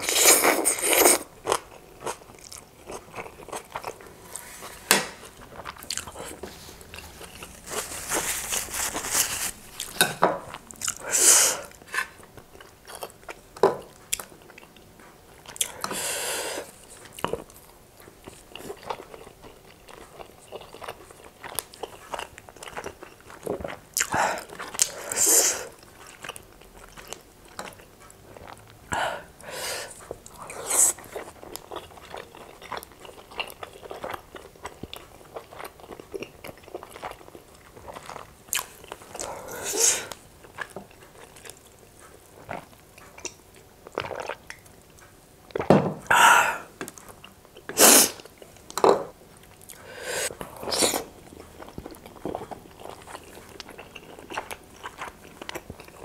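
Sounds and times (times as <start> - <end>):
wet chewing: 0.0 - 15.9.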